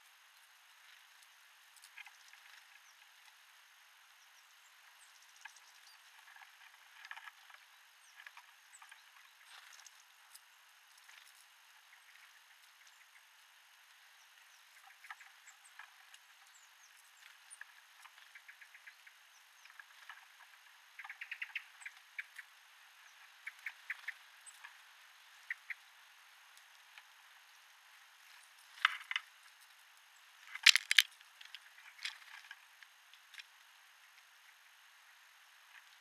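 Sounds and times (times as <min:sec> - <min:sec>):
birds pecking at seed: 0:00.4 - 0:03.5, 0:26.5 - 0:34.3
faint high bird chirps: 0:14.0 - 0:24.7.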